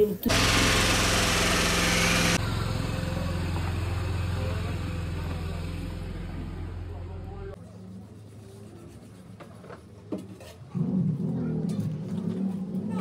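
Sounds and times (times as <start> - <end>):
loud hiss: 0.3 - 2.4
engine running: 0.3 - 7.6.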